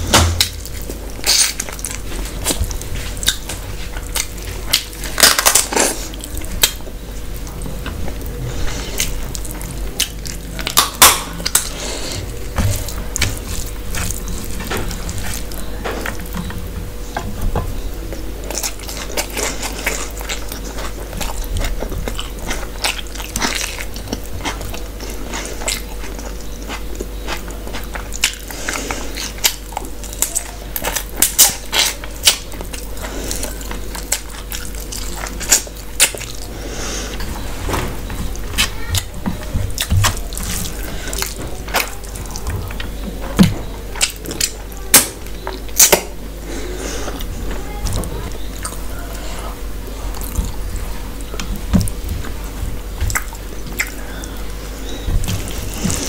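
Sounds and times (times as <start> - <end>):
chewing and lip-smacking: 0.4 - 17.2, 17.9 - 37.4, 38.1 - 46.2, 47.0 - 56.0.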